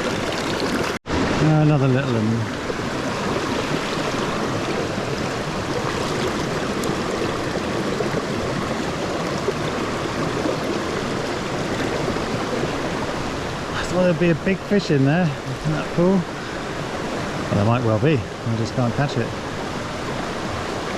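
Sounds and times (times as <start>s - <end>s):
stream babbling over rocks: 0.0s - 20.9s.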